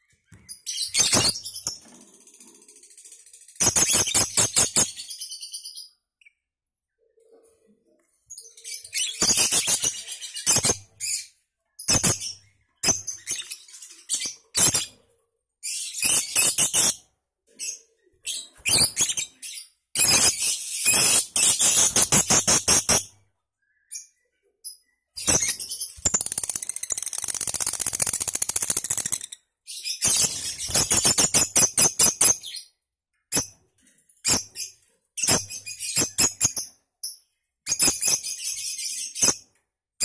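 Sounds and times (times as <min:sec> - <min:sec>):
lovebird chattering rapid rattling: 0:01.0 - 0:05.1, 0:20.0 - 0:23.1, 0:25.2 - 0:29.4, 0:30.0 - 0:32.5.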